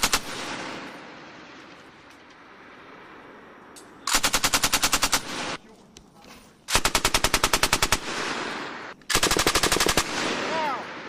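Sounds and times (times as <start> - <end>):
rolling gunfire echo: 0.0 - 2.5, 4.0 - 5.8, 6.7 - 11.0
machine gun bursts: 4.1 - 5.6, 6.7 - 8.1, 9.1 - 10.2.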